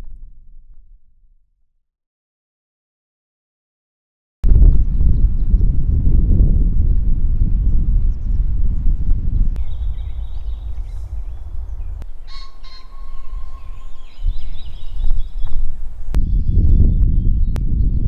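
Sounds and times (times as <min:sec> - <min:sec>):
wind buffeting microphone: 0:04.4 - 0:18.0
birds chirping: 0:09.3 - 0:18.0.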